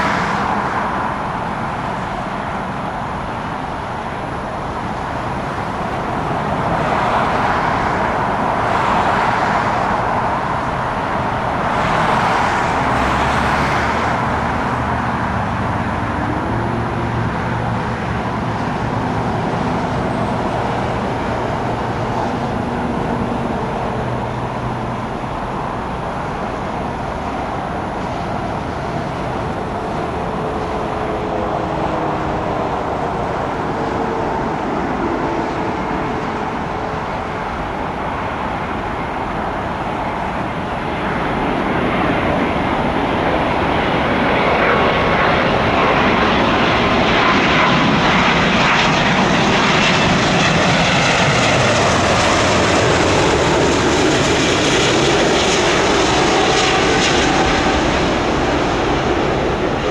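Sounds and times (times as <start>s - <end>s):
jet engines running: 0.0s - 59.9s
faint gliding whine tones: 15.9s - 59.9s.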